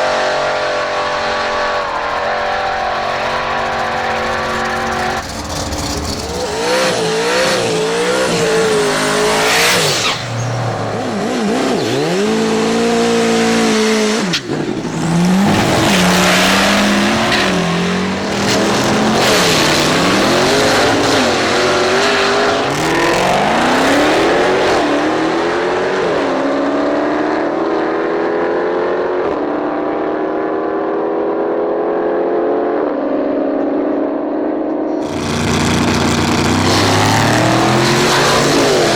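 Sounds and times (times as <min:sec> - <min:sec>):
tyre squeal: 0:00.0 - 0:12.5
race car engine revving: 0:00.0 - 0:30.8, 0:34.8 - 0:38.9.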